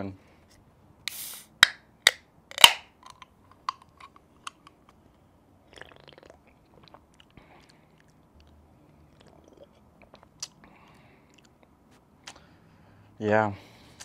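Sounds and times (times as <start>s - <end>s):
can opening crack and hiss: 1.0s - 3.8s
person swallowing: 5.7s - 10.6s.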